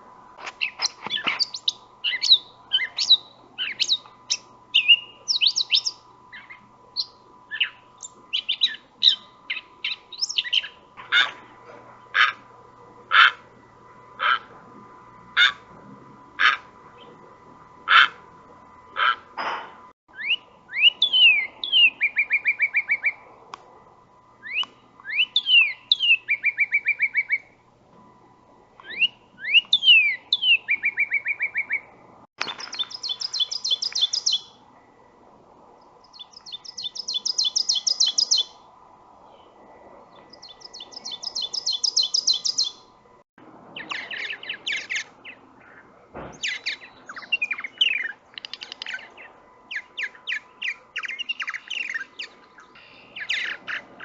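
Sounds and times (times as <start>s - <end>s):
jumble of bird notes: 0.0s - 23.3s, 24.3s - 35.2s, 39.4s - 54.0s
bird whistled slurs: 0.6s - 10.8s, 20.1s - 23.2s, 24.4s - 27.5s, 28.8s - 31.8s, 32.6s - 34.5s, 36.2s - 38.5s, 40.4s - 42.8s
dry high bird trill: 0.6s - 12.5s, 14.2s - 14.5s, 15.4s - 15.7s, 16.4s - 17.2s, 32.4s - 34.6s, 36.0s - 38.6s, 40.2s - 42.9s, 46.4s - 54.0s.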